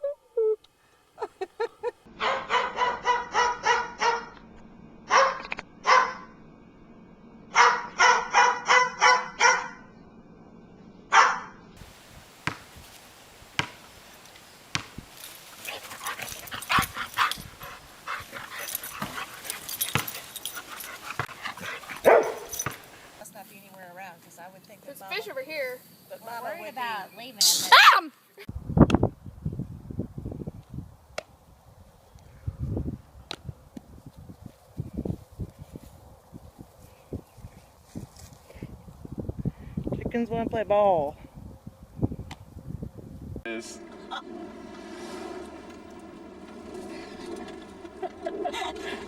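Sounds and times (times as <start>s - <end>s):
small dog yapping: 7.6s - 9.8s, 11.1s - 11.5s, 21.1s - 22.8s, 27.7s - 28.1s
rustling: 11.8s - 23.2s.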